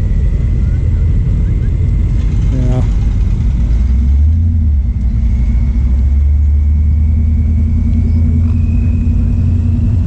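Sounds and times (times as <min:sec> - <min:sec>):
faint high whine: 0:00.0 - 0:02.2, 0:04.2 - 0:10.0
car engine rumbling: 0:00.0 - 0:10.0.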